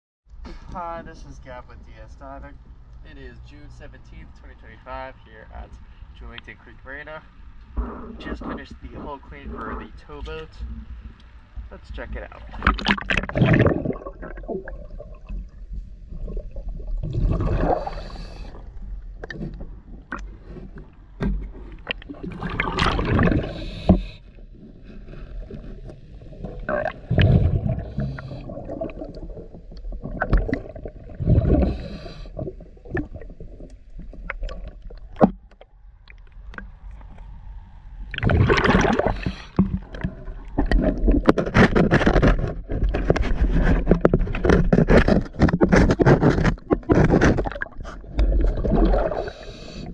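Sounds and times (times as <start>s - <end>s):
scuba regulator bubbles gurgling: 12.4s - 20.6s, 21.7s - 24.2s, 24.8s - 35.2s, 38.1s - 41.4s, 46.8s - 49.9s
underwater clicks: 12.5s - 15.5s, 17.1s - 24.0s, 25.5s - 37.3s, 38.0s - 49.9s.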